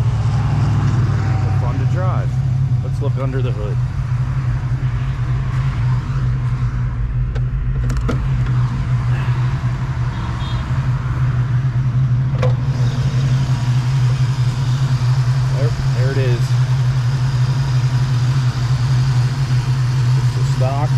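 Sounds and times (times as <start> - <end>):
car engine idling: 0.0 - 20.9
hood latch clicks: 12.3 - 12.6.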